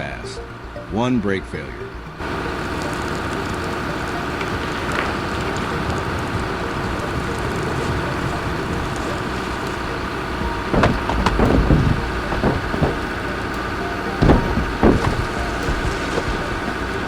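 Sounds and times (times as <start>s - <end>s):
heavy truck engine running: 0.0s - 17.0s
sharp knocks or thuds: 10.4s - 16.4s.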